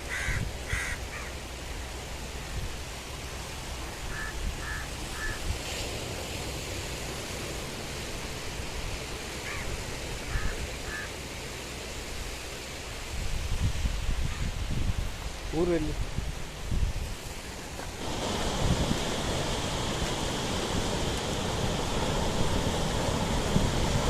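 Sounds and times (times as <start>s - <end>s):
steady outdoor hiss: 0.0s - 24.0s
bird calling: 0.1s - 1.3s, 4.1s - 5.4s, 10.3s - 11.1s.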